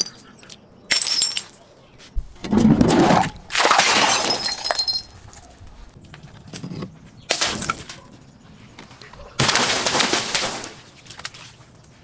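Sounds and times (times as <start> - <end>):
glass shattering and crunching: 0.9 - 1.6, 3.5 - 5.3, 7.3 - 8.0
glass shards tinkling: 4.1 - 5.2.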